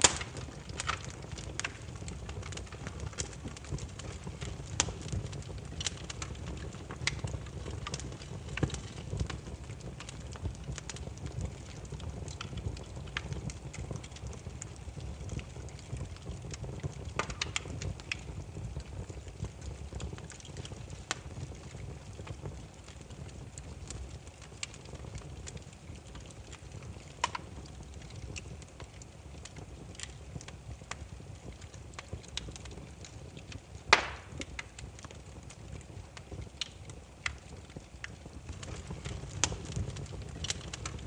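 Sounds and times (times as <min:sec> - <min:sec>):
firewood crackling and popping: 0:00.0 - 0:41.0.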